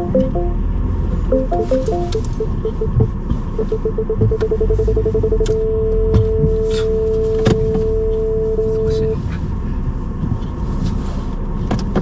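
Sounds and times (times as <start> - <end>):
parking sensor beeps: 0.0 - 9.2
low rumble of car: 0.0 - 12.0.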